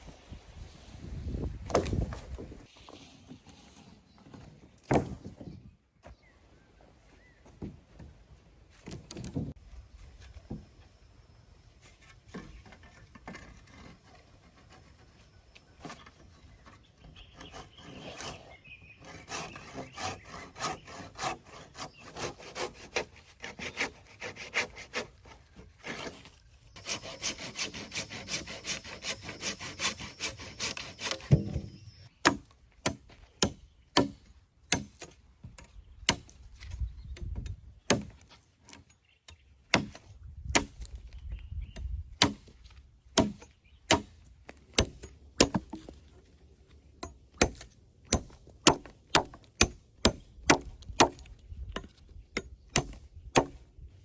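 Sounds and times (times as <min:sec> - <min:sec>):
hand saw cutting wood: 0:17.2 - 0:35.0.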